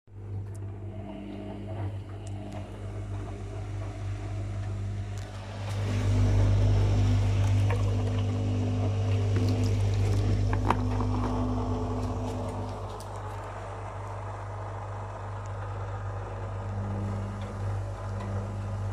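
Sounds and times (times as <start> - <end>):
drain pump humming: 0.1 - 18.9
water rushing: 5.2 - 14.9.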